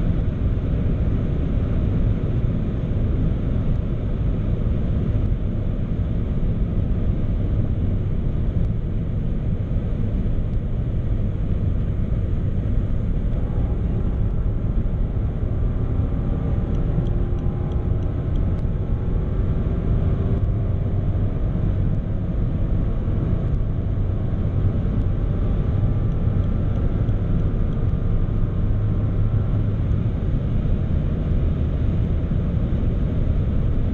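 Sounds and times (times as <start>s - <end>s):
faint engine tone: 0.0s - 33.9s
road and wind noise: 0.0s - 33.9s.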